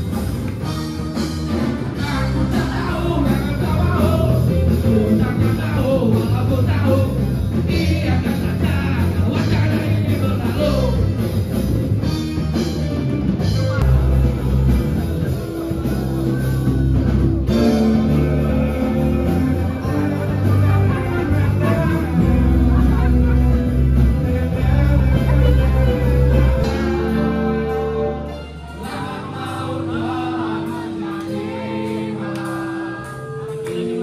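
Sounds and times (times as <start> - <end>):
rock band playing: 0.0 - 34.0
person singing: 1.6 - 11.2, 17.5 - 34.0.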